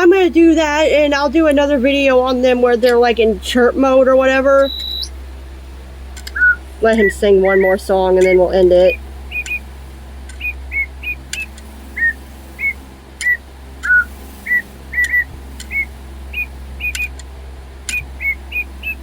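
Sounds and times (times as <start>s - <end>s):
toy bird whistling chirpy notes: 4.6s - 5.1s, 6.3s - 7.6s, 9.3s - 9.6s, 10.4s - 17.1s, 17.9s - 19.0s
faint clicks: 6.2s - 7.1s.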